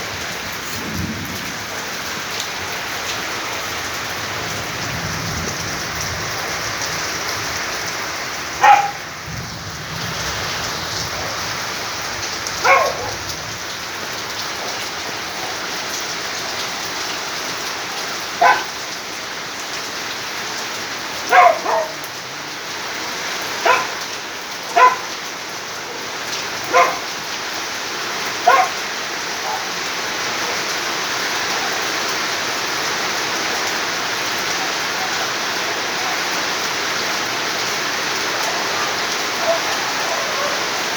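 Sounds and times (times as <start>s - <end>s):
heavy rain falling: 0.0s - 40.9s
dog barking: 8.6s - 9.1s, 12.6s - 13.3s, 18.4s - 18.8s, 21.2s - 22.2s, 23.6s - 25.2s, 25.8s - 27.2s, 28.4s - 28.8s, 29.4s - 29.8s, 38.5s - 40.9s.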